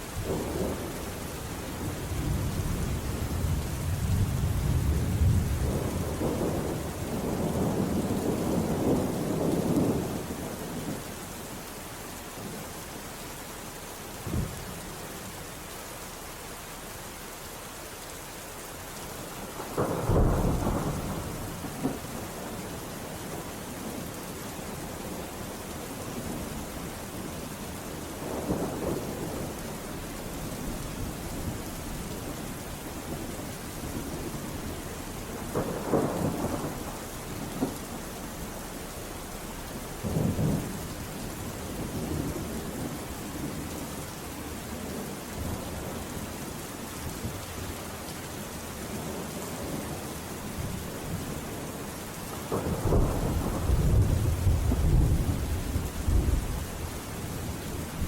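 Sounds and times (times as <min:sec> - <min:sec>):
steady rain falling: 0:00.0 - 0:58.0
thunder rumbling: 0:00.2 - 0:11.0, 0:19.5 - 0:24.0, 0:26.2 - 0:44.0, 0:52.4 - 0:58.0.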